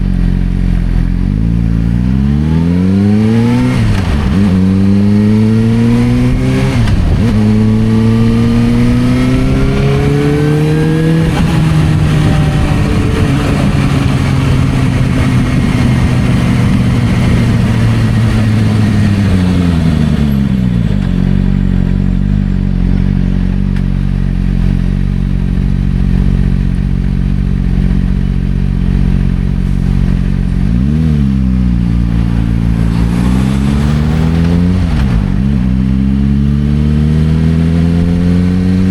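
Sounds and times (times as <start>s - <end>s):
motorcycle engine accelerating: 0.0s - 38.9s
wind rush: 3.2s - 21.0s, 31.8s - 36.2s.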